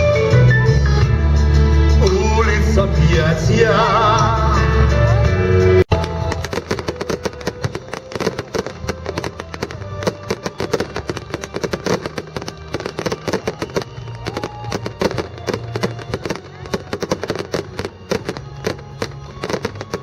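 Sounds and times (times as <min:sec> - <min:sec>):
background music: 0:00.0 - 0:20.0
fireworks popping and crackling: 0:05.9 - 0:20.0.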